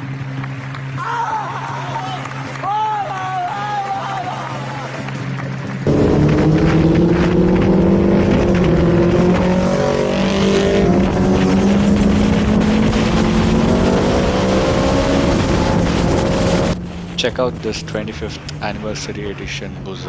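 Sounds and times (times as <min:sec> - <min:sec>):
motorcycle engine at high revs: 0:05.0 - 0:19.0.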